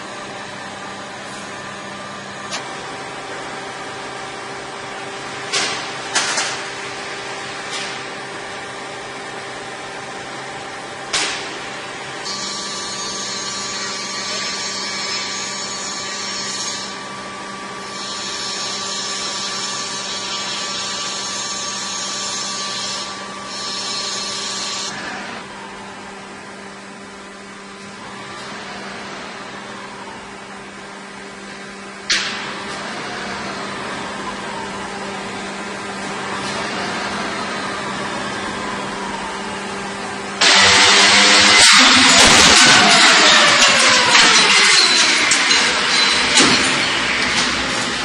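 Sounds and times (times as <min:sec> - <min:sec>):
metal lathe humming: 0:36.2 - 0:48.0.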